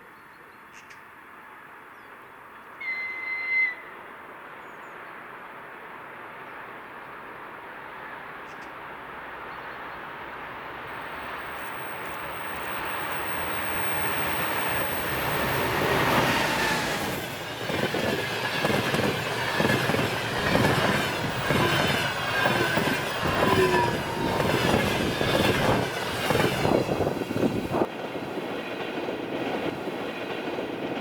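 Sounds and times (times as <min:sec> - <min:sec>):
train wheels clattering over rail joints: 0:15.7 - 0:28.0.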